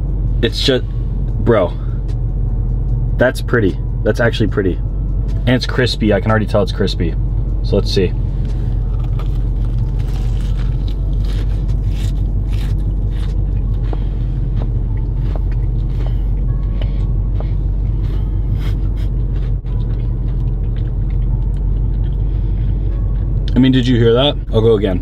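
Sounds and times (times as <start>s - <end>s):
low steady hum: 0.0s - 25.0s
crunchy chewing of fried chicken: 8.7s - 17.0s, 18.0s - 23.3s.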